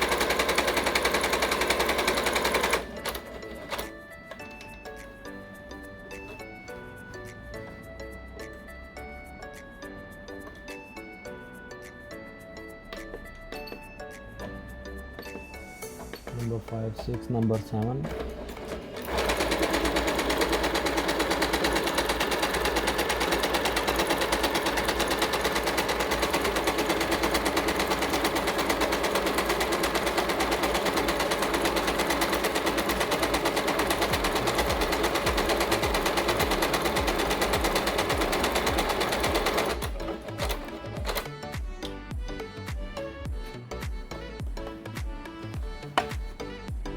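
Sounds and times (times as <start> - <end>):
sewing machine stitching: 0.0 - 4.8, 15.6 - 41.5
background music: 0.0 - 46.9.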